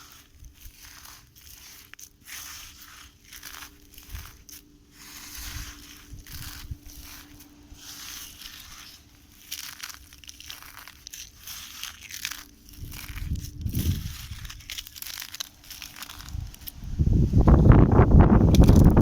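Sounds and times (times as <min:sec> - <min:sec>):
sand crunching: 0:00.0 - 0:19.0.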